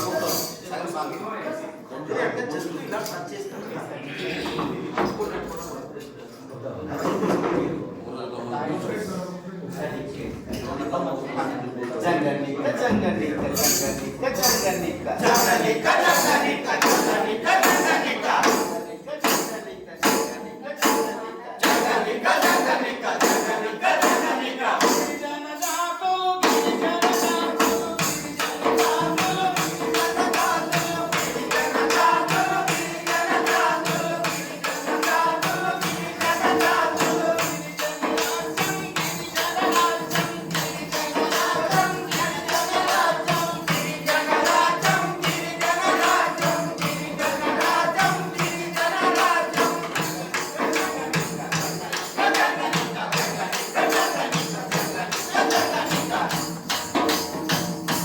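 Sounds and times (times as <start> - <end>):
jingling tambourine-like beat: 0.0 - 1.8, 4.9 - 6.1, 12.8 - 58.0
man singing: 12.6 - 56.8.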